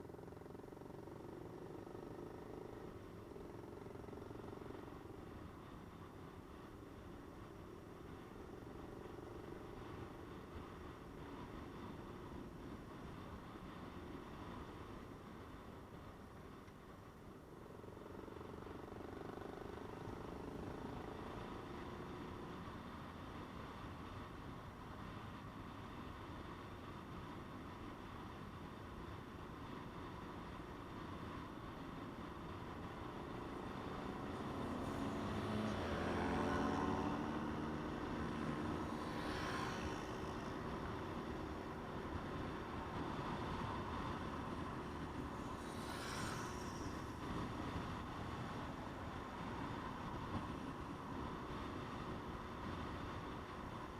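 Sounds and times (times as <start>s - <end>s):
road noise: 0.0s - 53.9s
vehicle engine running: 29.5s - 53.9s.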